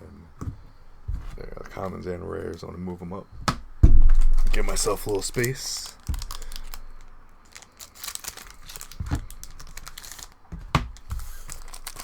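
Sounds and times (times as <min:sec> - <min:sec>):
card piles shifting: 0:00.3 - 0:12.0
wrappers crinkling and rustling: 0:04.1 - 0:12.0.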